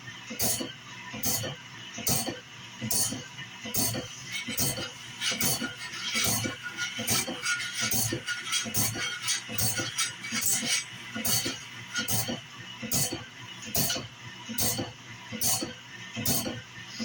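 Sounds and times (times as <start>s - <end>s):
sharpening machine running: 3.8s - 12.3s.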